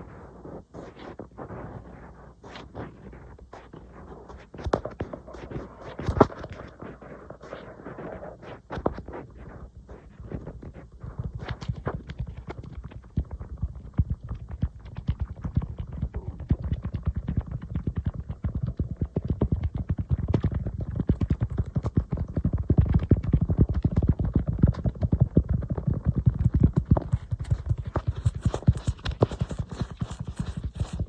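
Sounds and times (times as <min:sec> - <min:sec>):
fingers tapping on tablet: 0:10.4 - 0:31.0.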